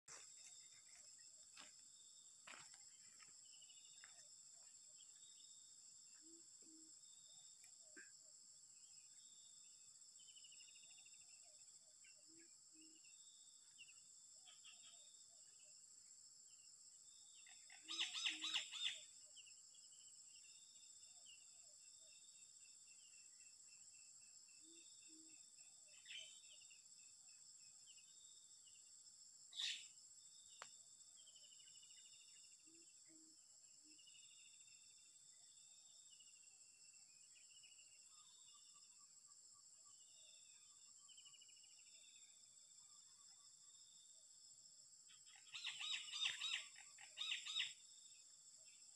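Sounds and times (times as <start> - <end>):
crickets chirping: 0.1 - 48.9
small birds chirping: 17.3 - 20.4, 29.5 - 32.8, 45.1 - 47.8.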